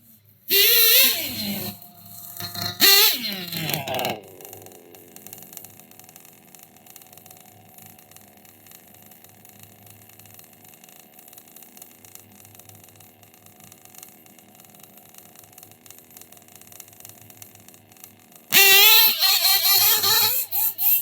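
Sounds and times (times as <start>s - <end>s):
model engine idling: 0.5s - 6.0s, 18.6s - 21.0s
loud sweeping pitch sound: 1.0s - 5.7s.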